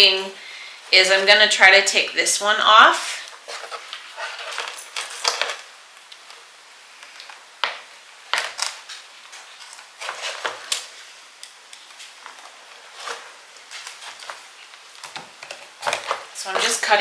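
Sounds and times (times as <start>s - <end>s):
handling noise: 3.4s - 6.4s, 7.0s - 17.0s.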